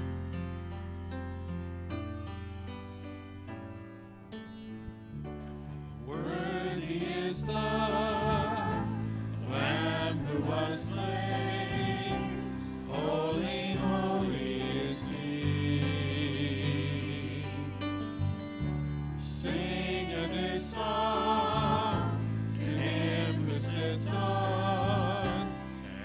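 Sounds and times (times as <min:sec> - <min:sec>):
sustained instrumental chords: 0:05.3 - 0:26.0
voices singing with vibrato: 0:06.0 - 0:17.9, 0:19.2 - 0:26.0
steady bass: 0:06.1 - 0:25.8.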